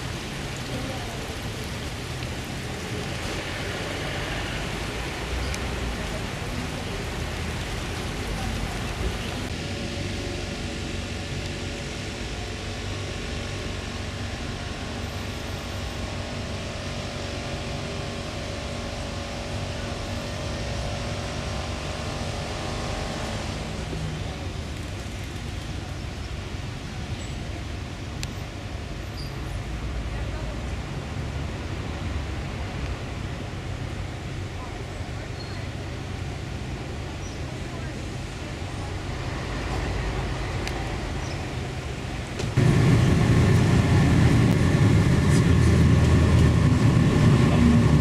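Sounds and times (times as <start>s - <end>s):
motor vehicle running: 38.0s - 48.0s.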